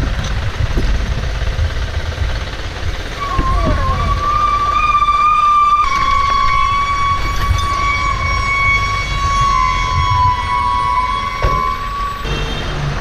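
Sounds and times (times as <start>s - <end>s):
low rumble: 0.0s - 12.2s
high-pitched steady tone: 3.2s - 12.4s.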